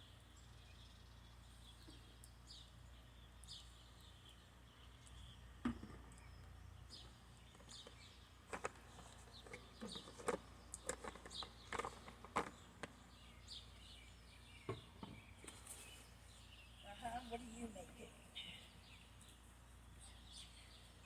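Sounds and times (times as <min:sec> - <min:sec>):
faint small bird chirps: 0:13.0 - 0:21.0.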